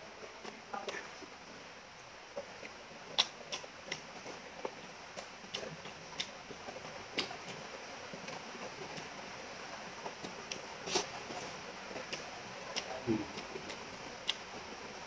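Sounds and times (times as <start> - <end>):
steady hiss: 0.0 - 15.0
close chewing: 0.3 - 1.5, 2.3 - 15.0
wet mouth smacks and clicks: 3.2 - 4.0, 10.2 - 11.1, 12.8 - 14.4.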